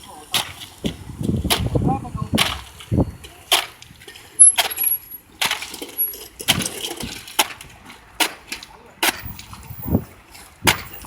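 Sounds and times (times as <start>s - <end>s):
sharp knocks and scrapes: 2.4s - 11.0s.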